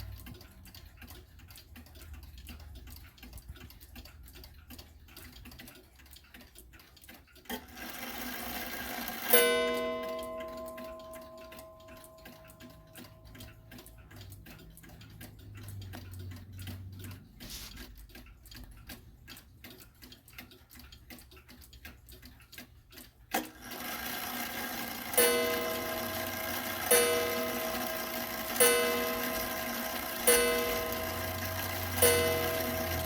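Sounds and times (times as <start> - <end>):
clock ticking: 0.0 - 33.0
clock striking: 7.5 - 17.7, 23.3 - 33.0.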